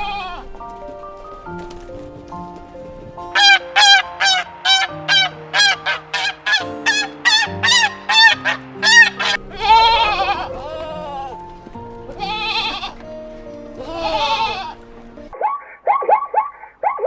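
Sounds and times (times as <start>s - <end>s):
goat or sheep bleating: 0.0s - 0.5s, 3.4s - 11.5s, 12.1s - 13.0s, 13.8s - 14.8s
soft background music: 0.0s - 15.4s
waterfowl honking: 0.0s - 17.0s.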